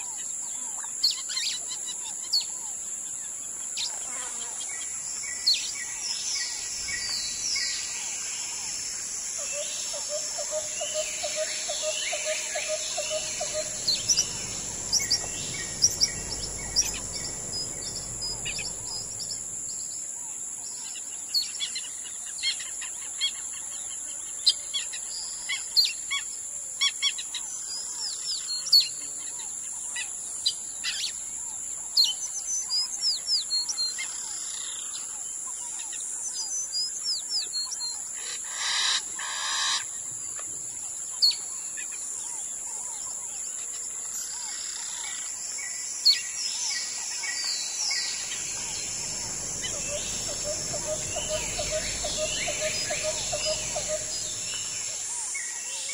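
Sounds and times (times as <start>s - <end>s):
birds chirping and calling: 9.6s - 19.9s, 47.9s - 55.8s
high-pitched drone: 11.4s - 19.9s, 48.1s - 55.2s
faint low rumble: 12.8s - 20.0s, 48.2s - 55.1s.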